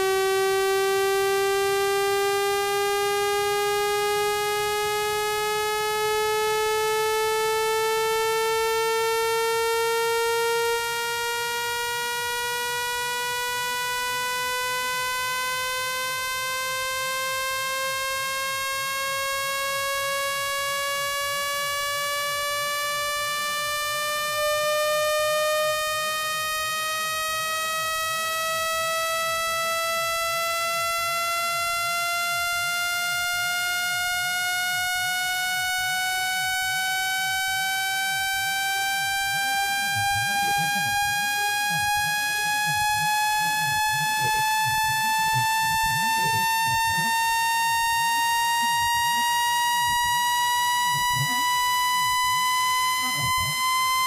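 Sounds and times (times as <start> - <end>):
buzzy rising tone: 0.0 - 54.0.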